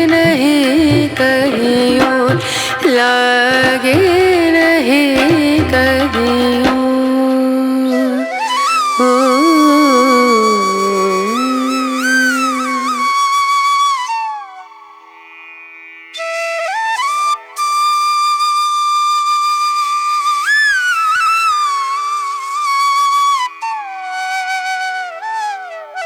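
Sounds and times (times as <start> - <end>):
flute playing slow melody: 7.9 - 14.7.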